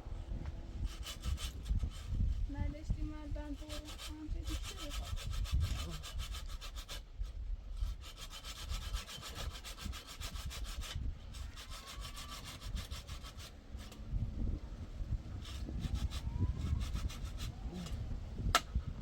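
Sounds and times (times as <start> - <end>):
hand saw cutting wood: 0.8 - 2.4, 3.5 - 14.0, 15.4 - 18.0.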